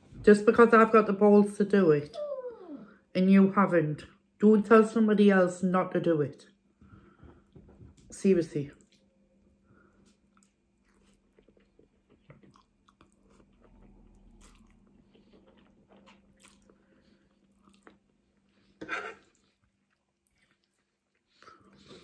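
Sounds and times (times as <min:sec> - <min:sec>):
person chewing: 0:10.0 - 0:22.0.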